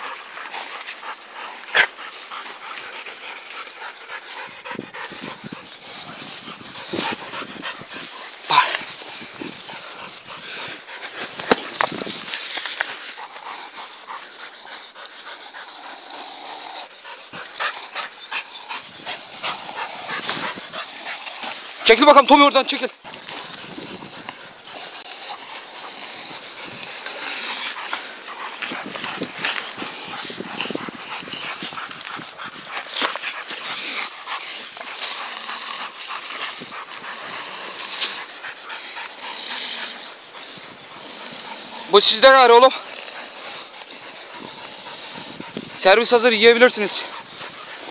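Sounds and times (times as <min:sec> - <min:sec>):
scuffling: 0:00.0 - 0:15.9
dogs panting hard: 0:00.0 - 0:47.9
sharp snaps and rustles: 0:00.0 - 0:47.9
short scuffs and snaps: 0:11.2 - 0:13.2.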